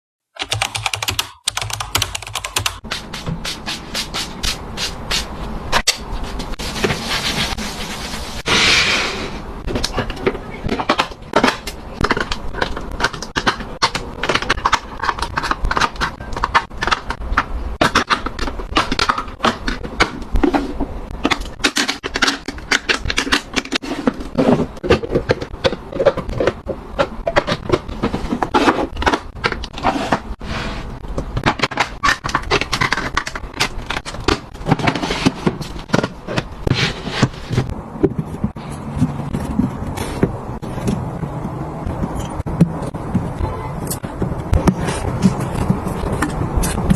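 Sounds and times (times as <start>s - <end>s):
small items clicking and scraping: 31.1s - 41.0s.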